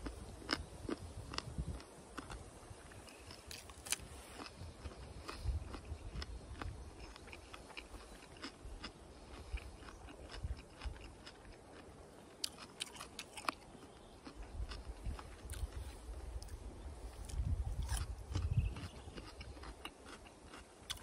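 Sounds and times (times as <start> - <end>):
person chewing crunchy radish: 0.0 - 21.0.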